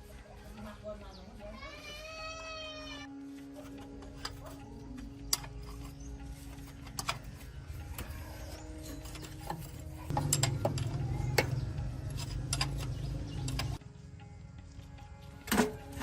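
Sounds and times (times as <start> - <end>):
metallic clicks and knocks: 4.0 - 13.8.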